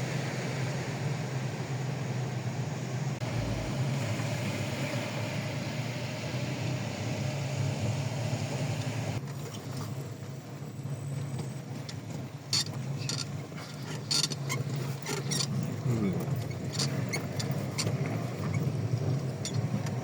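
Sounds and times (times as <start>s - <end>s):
car engine and road drone: 0.0s - 9.3s.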